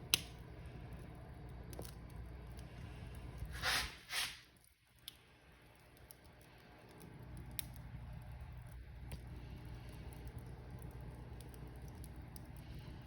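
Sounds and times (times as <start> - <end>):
low fire rumble: 0.0 - 13.0
wood fire crackling: 0.0 - 13.0
fire hissing bursts: 3.4 - 4.5.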